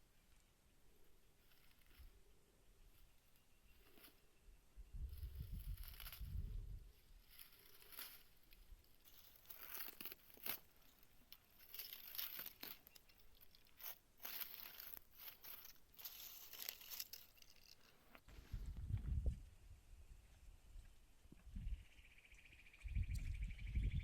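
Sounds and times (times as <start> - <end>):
dry crackling rustles: 1.0 - 4.3, 5.1 - 18.7.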